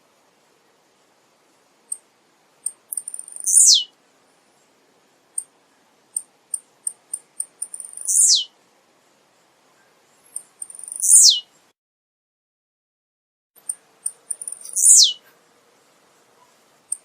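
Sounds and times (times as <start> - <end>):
bird singing high ticks: 1.9 - 4.0, 5.3 - 5.5, 6.1 - 8.5, 10.2 - 11.5, 13.6 - 15.2.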